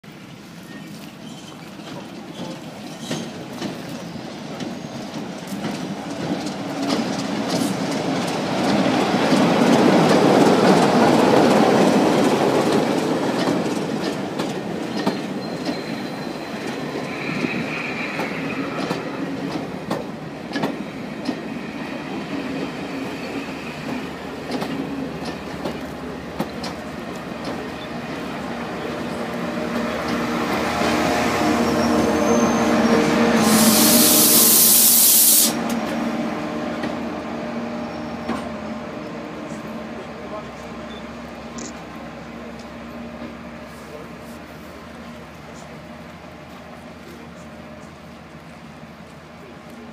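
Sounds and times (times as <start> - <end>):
locomotive rushing past: 0.1 - 49.9
train wheels clickety-clack: 0.2 - 31.6, 36.7 - 37.0, 38.2 - 38.6
wheel squeal: 0.7 - 3.4, 14.9 - 18.8
locomotive engine drone: 35.6 - 49.9.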